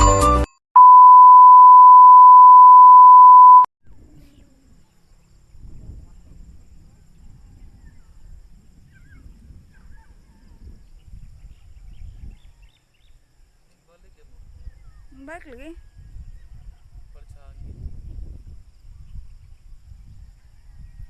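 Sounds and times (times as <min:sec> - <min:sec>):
loud electronic beep: 0:00.8 - 0:03.7.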